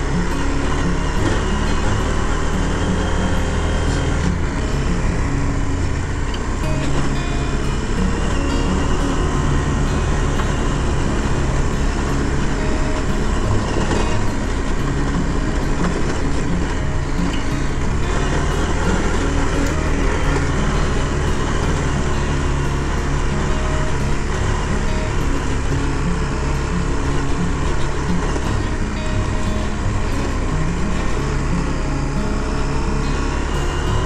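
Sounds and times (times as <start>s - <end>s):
motorcycle engine running: 0.0s - 34.0s
wind and road noise: 0.0s - 34.0s.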